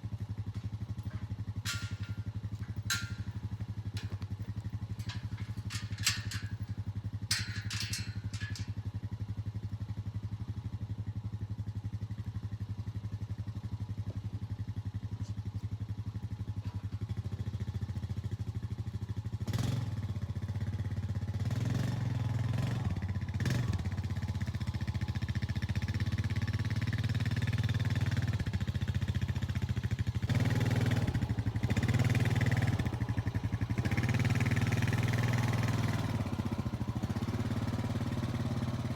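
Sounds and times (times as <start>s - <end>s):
engine running: 0.0s - 9.8s, 19.4s - 38.9s.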